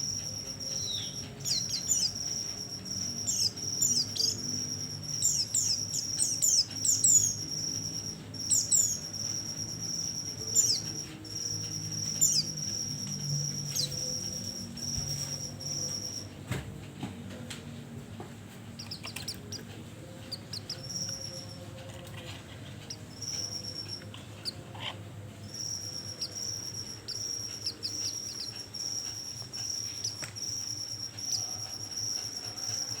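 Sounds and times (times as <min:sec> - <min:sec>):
short high bird chirps: 0:00.0 - 0:16.1
high-pitched bird trill: 0:00.0 - 0:16.4, 0:18.8 - 0:33.0.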